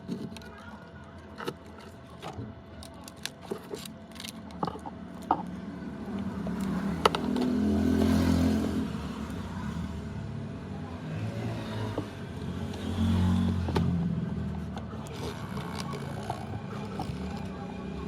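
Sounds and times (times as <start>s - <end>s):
passing motor vehicle: 5.6s - 18.0s
hand tools clicking and tapping: 6.5s - 8.1s.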